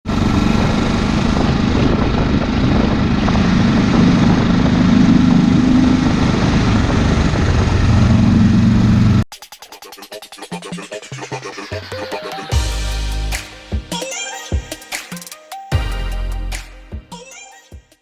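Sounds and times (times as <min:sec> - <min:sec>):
motorcycle engine droning: 0:00.0 - 0:09.2.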